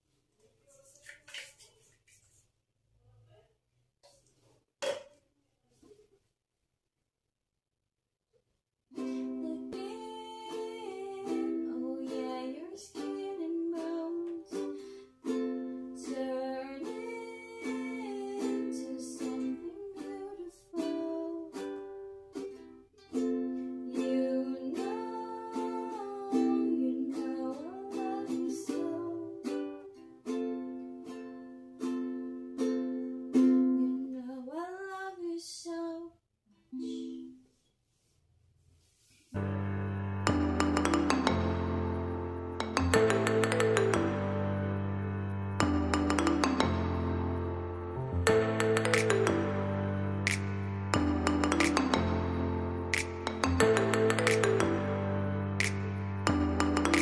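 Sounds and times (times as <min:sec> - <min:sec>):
ukulele strumming: 0:08.9 - 0:34.2, 0:39.4 - 0:57.0.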